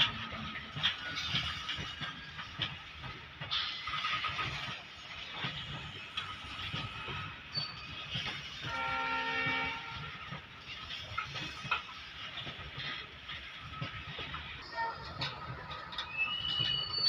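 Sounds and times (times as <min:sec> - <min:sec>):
train wheels clattering over rail joints: 0:00.0 - 0:17.0
train horn: 0:08.6 - 0:10.3.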